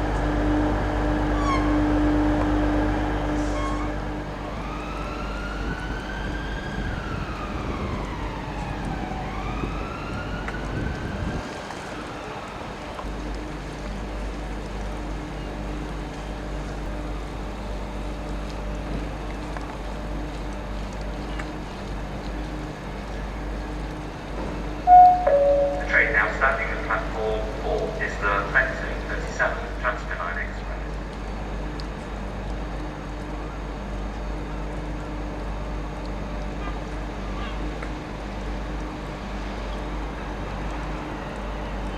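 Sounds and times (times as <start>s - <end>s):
emergency vehicle siren wailing: 0.0s - 13.1s, 24.8s - 29.2s, 35.4s - 41.9s.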